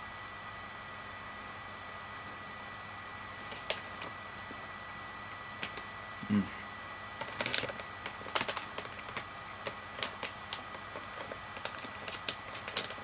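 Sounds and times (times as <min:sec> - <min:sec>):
person humming low: 0:06.2 - 0:06.6.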